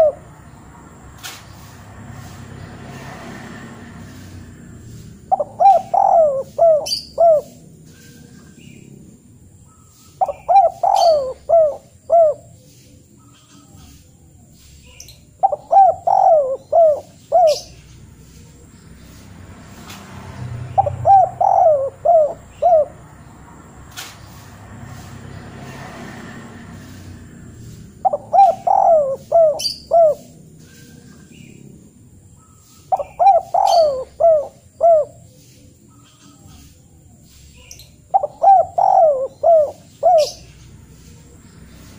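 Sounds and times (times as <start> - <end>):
bird calling: 0.0 - 0.3, 4.9 - 9.0, 9.6 - 18.7, 20.6 - 23.3, 27.6 - 31.6, 32.3 - 41.7.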